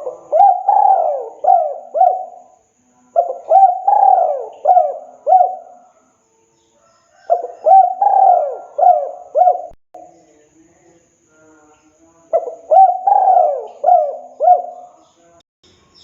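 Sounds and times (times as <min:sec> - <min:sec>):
dove cooing: 0:00.0 - 0:06.0, 0:07.1 - 0:10.1, 0:12.3 - 0:15.0.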